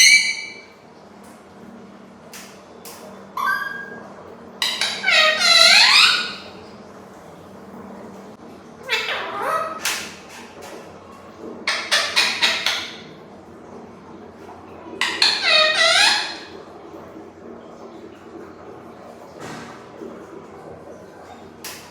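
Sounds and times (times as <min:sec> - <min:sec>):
parrot calling: 0:00.0 - 0:00.7, 0:03.4 - 0:04.0, 0:04.6 - 0:06.6, 0:08.8 - 0:10.0, 0:11.7 - 0:13.1, 0:15.0 - 0:16.5.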